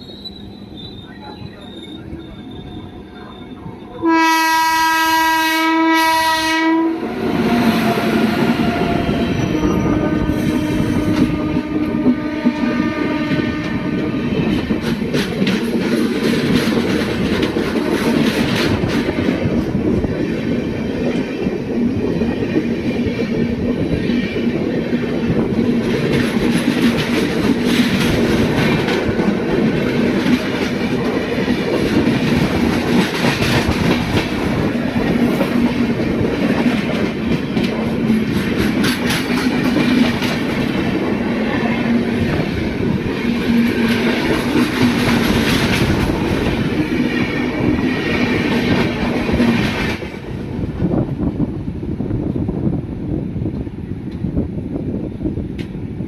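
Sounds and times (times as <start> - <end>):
train rumbling: 0.0 - 56.0
wheels clacking over rail joints: 25.2 - 41.1.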